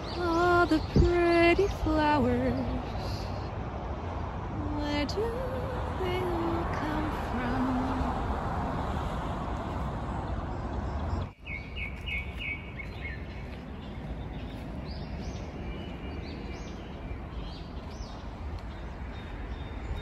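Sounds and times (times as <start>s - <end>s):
small birds chirping: 10.1s - 20.0s.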